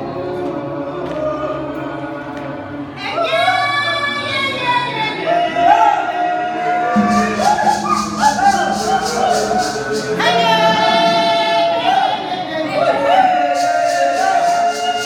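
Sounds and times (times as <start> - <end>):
voices singing gospel song: 0.0 - 15.0
tambourine shaking: 7.0 - 10.5, 13.6 - 15.0.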